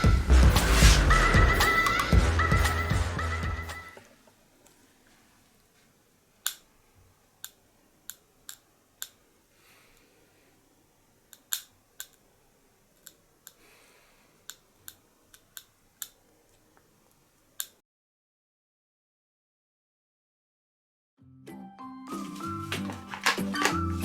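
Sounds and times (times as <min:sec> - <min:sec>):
faint background hiss: 0:03.9 - 0:17.8.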